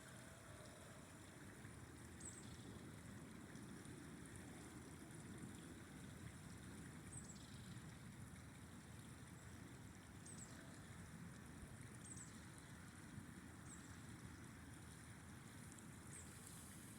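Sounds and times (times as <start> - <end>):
river flowing: 12.7 - 16.9.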